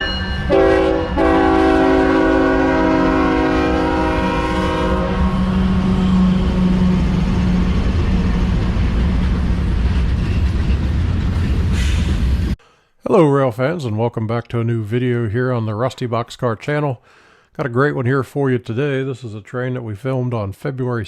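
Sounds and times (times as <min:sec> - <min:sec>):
locomotive air horn chord: 0:00.0 - 0:07.6
passing train rumble: 0:00.0 - 0:12.6.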